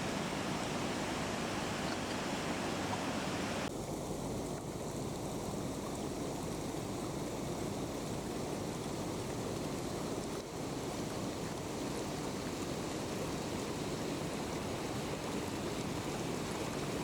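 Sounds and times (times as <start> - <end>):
river rushing: 0.0 - 3.7.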